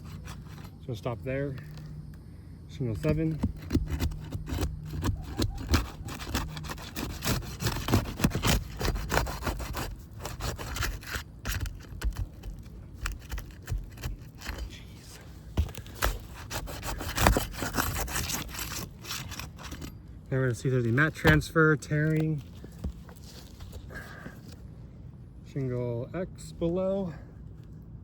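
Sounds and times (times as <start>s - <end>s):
scraping and crackling: 0.0s - 2.2s, 2.9s - 24.6s
crowbar prying roof shingles: 2.9s - 14.8s, 15.4s - 19.9s, 20.5s - 24.2s.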